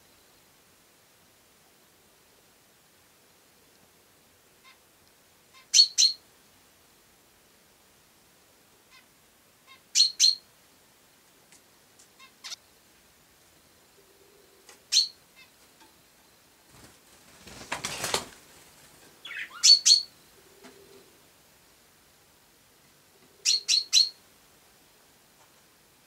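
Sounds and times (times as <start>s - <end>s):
sparrows chirping: 5.6s - 6.2s, 9.7s - 10.4s, 12.2s - 12.6s, 14.0s - 15.6s, 19.1s - 21.0s, 23.4s - 24.2s
rustling: 16.6s - 19.6s.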